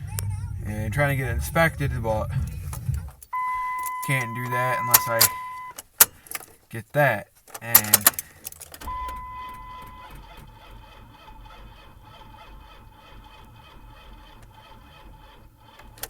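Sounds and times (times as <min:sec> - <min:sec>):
thin whine: 0:00.0 - 0:05.7, 0:08.8 - 0:13.8
vehicle electrical hum: 0:00.0 - 0:16.0.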